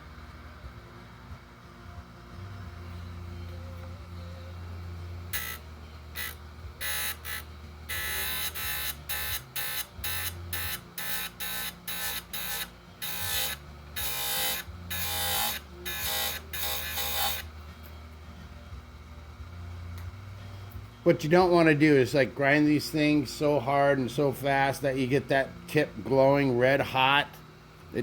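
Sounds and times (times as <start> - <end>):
chain grinder humming: 5.3 - 17.9.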